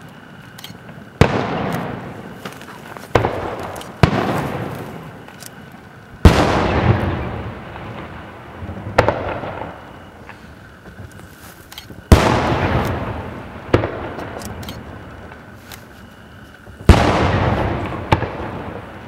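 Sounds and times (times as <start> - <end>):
sharp firework crack: 0.8 - 5.3, 6.2 - 10.6, 11.9 - 19.0
firework booms with echo: 1.2 - 2.5, 3.1 - 5.2, 6.2 - 10.3, 12.0 - 15.4, 16.7 - 19.0.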